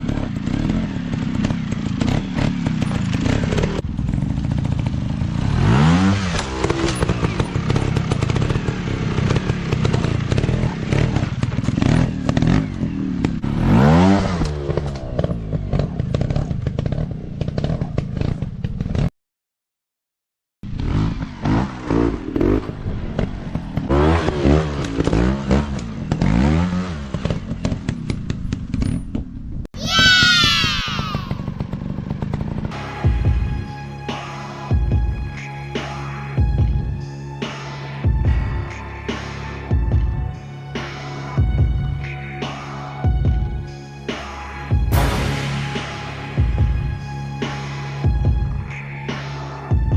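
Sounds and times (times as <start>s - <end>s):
dirt bike engines revving: 0.0s - 19.1s, 20.7s - 28.6s, 29.8s - 32.8s.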